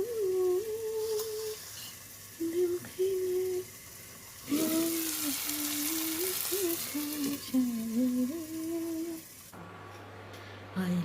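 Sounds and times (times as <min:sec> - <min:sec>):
woman humming: 0:00.0 - 0:01.6, 0:02.4 - 0:03.7, 0:04.5 - 0:09.2
steady hiss: 0:00.0 - 0:10.7.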